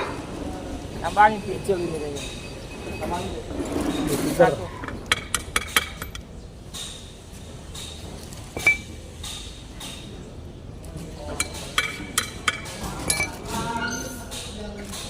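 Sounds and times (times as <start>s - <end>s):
metal on metal clinks: 4.8s - 7.1s, 8.6s - 9.6s, 11.4s - 14.1s.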